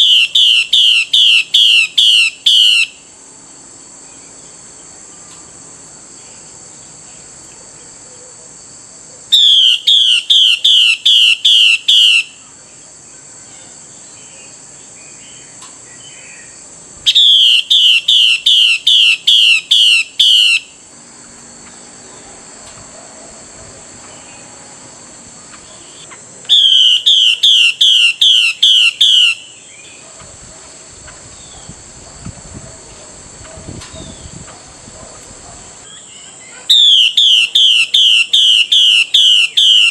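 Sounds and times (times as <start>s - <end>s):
steady high-pitched hiss: 0.0s - 39.9s.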